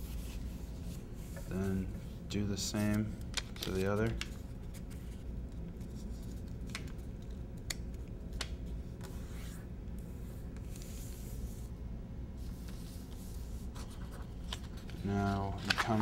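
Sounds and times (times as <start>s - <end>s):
paper crackling: 2.9s - 5.2s, 13.8s - 16.0s
paper rubbing and sliding: 10.2s - 11.7s.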